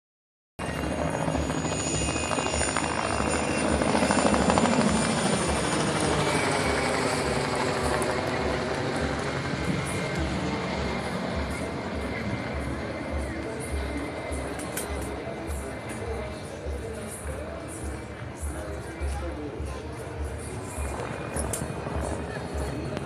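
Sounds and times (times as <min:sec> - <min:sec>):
turbine whine: 0:00.6 - 0:23.0
helicopter rotor thudding: 0:00.8 - 0:16.2.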